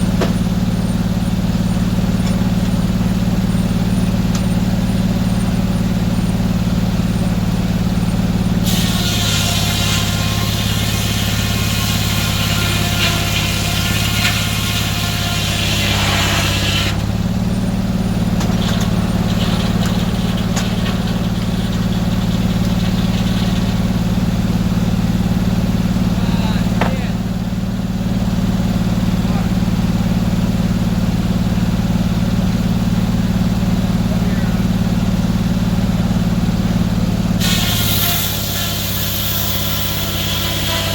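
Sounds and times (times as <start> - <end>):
saw cutting through log: 0.0 - 27.4, 37.3 - 40.9
sawmill engine running: 0.0 - 40.9.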